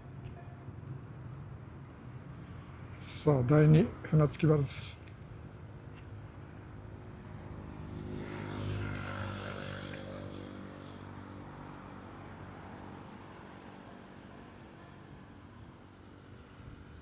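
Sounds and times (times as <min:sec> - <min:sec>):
motor engine passing by: 0:07.4 - 0:11.8.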